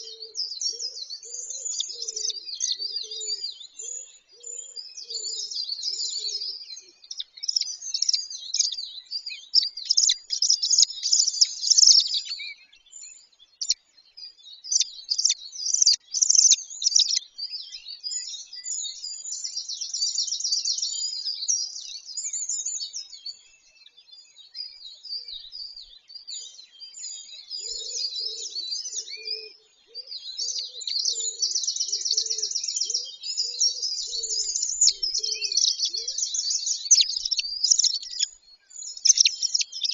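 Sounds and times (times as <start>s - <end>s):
songbirds chirping and trilling: 0.0s - 39.9s
lower bird call: 27.6s - 39.9s.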